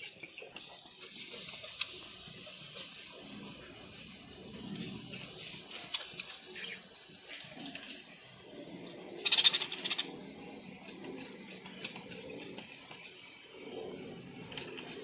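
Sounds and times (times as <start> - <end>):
small clicks and drips: 0.0 - 8.4, 10.8 - 13.4
water spray splashing: 1.0 - 13.4
high budgie chatter: 5.7 - 6.9, 9.2 - 10.1.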